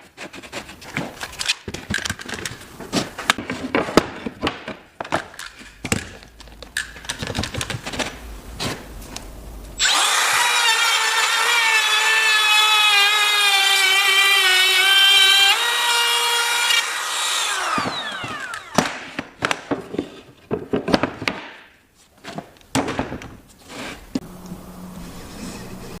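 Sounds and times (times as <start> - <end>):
router motor whining: 9.8 - 18.8.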